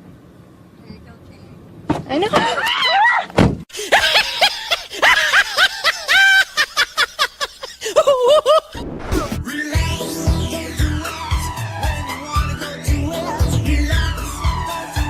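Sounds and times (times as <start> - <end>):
high-pitched laughing: 2.3 - 8.8.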